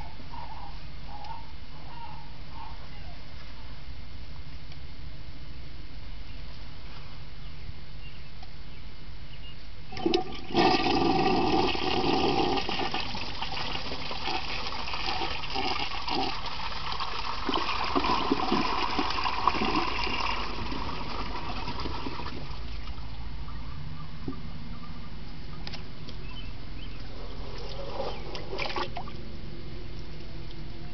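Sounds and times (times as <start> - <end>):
toilet flush clicks: 9.9 - 11.4
toilet bowl gurgling: 9.9 - 23.0
toilet flushing water rush: 9.9 - 23.0.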